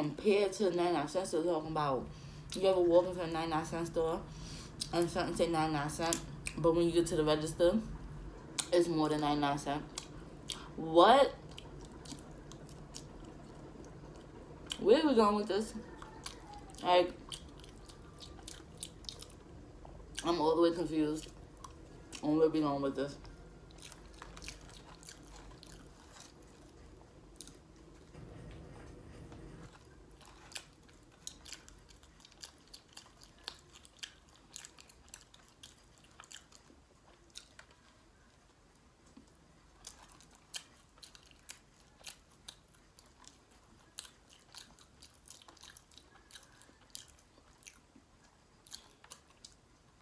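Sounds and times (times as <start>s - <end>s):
person chewing food: 9.9s - 10.8s, 11.4s - 14.8s, 15.7s - 20.3s, 21.2s - 22.4s, 23.0s - 50.0s.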